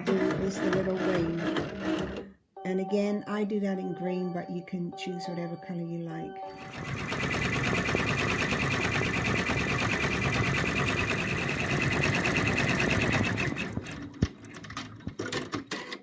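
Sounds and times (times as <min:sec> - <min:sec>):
embroidery machine stitching: 0:00.0 - 0:02.3, 0:06.6 - 0:16.0.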